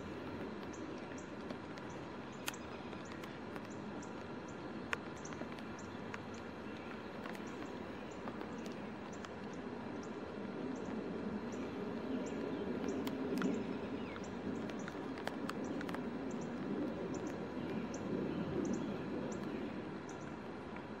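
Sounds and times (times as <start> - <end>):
steady low rumble: 0.0 - 21.0
sharp clicks: 0.2 - 9.6.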